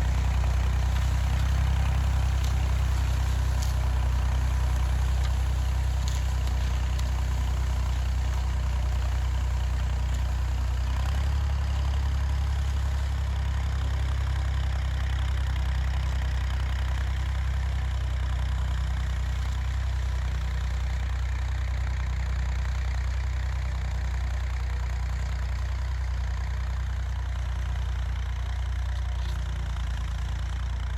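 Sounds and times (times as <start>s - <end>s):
tractor engine idling: 0.0s - 30.9s.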